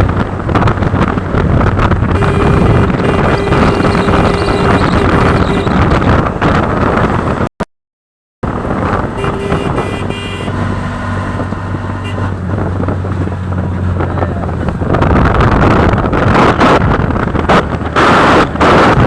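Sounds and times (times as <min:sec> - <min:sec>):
engine running: 0:00.0 - 0:07.4
wind buffeting microphone: 0:00.0 - 0:07.5, 0:08.4 - 0:19.0.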